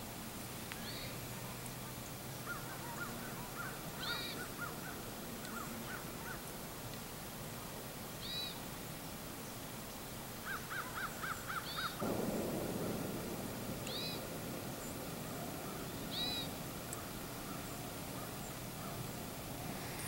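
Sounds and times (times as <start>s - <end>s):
burst of noise: 12.0s - 20.0s
short lower bird notes: 13.0s - 19.0s
high arched bird call: 13.8s - 17.7s.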